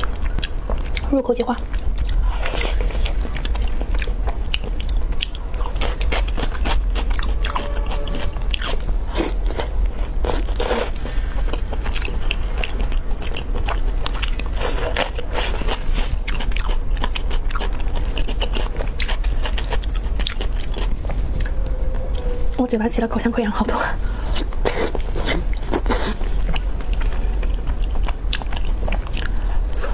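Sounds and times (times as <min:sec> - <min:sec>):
low hum: 0:00.0 - 0:29.9
wet chewing and lip smacks: 0:24.4 - 0:29.9.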